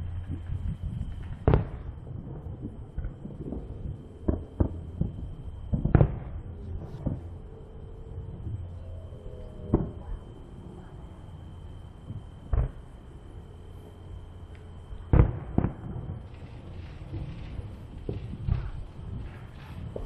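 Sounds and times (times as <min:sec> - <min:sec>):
small firework pops: 0:00.0 - 0:07.3, 0:12.1 - 0:12.8, 0:14.5 - 0:20.0
fireworks bangs and booms: 0:00.0 - 0:07.5, 0:09.6 - 0:11.1, 0:12.0 - 0:13.0, 0:15.0 - 0:20.0.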